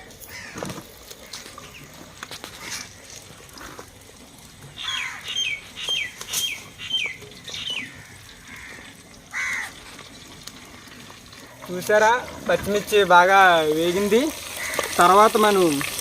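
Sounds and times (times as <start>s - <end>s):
bird calling falling notes: 4.8s - 8.7s.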